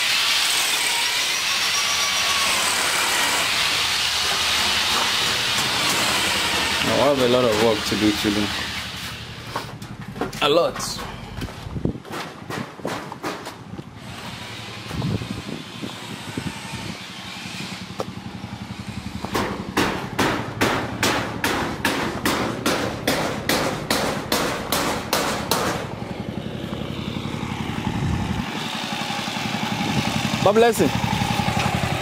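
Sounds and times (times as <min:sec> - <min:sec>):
small engine idling: 0:14.0 - 0:21.0, 0:25.8 - 0:32.0
hammer blows: 0:19.2 - 0:26.0.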